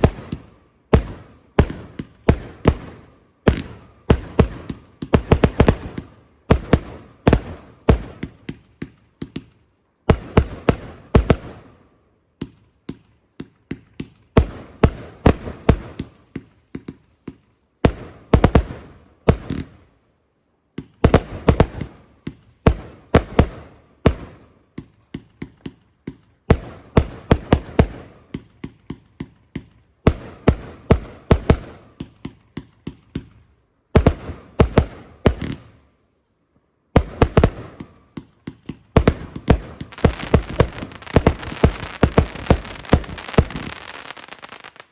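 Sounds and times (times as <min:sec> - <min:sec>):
fireworks bangs: 0:37.0 - 0:44.9.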